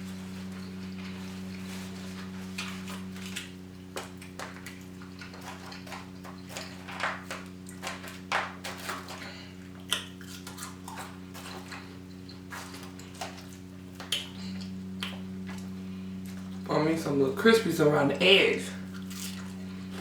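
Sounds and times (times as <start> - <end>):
steady low hum: 0.0 - 20.0
person chewing: 0.2 - 16.6, 18.8 - 20.0.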